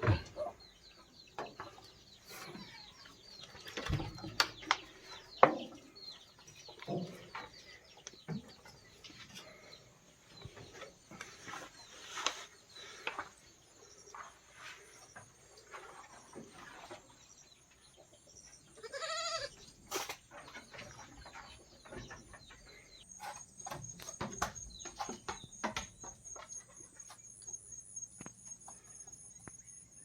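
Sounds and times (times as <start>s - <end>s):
goat bleating: 18.8s - 19.6s.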